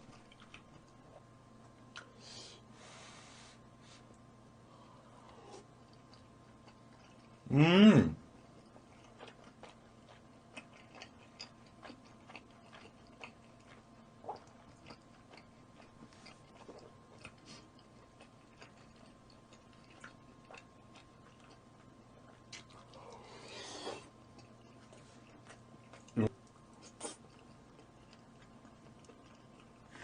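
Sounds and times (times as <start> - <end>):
chewing and mouth clicks: 0.0 - 1.2, 1.9 - 2.1, 5.7 - 7.4, 8.5 - 23.3, 24.0 - 30.0
man humming mm: 7.5 - 8.2.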